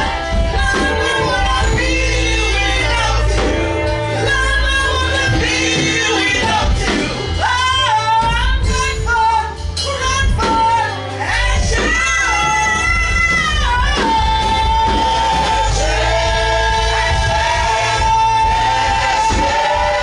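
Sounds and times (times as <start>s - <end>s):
bass: 0.0s - 20.0s
keyboard: 0.0s - 20.0s
woman singing: 0.0s - 20.0s.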